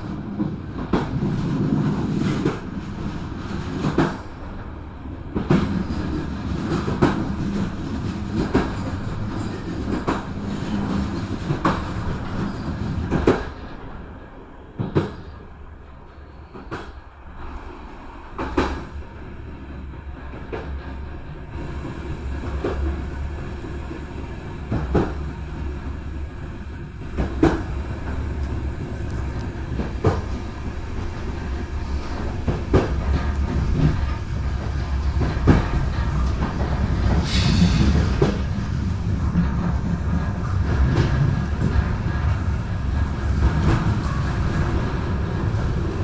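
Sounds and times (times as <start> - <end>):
train rumbling: 0.0 - 46.0.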